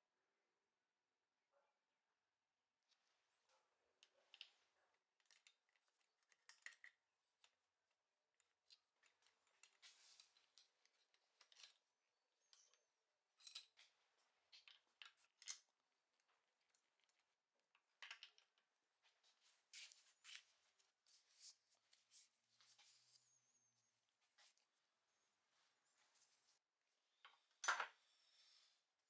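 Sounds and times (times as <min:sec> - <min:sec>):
small tools clicking and scraping: 0:13.4 - 0:15.7.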